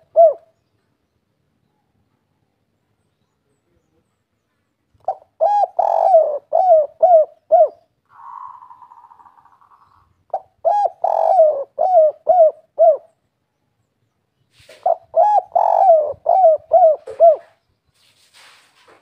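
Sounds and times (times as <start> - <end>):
dove cooing: 0.0 - 0.5, 5.0 - 13.2, 14.6 - 17.6.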